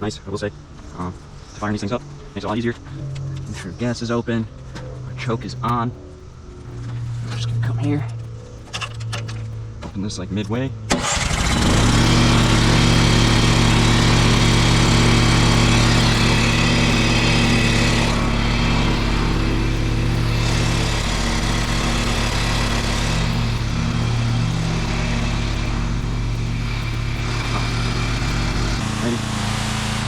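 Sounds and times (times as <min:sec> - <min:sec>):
hiss of spray: 0:10.9 - 0:30.0
pressure washer engine running: 0:10.9 - 0:30.0.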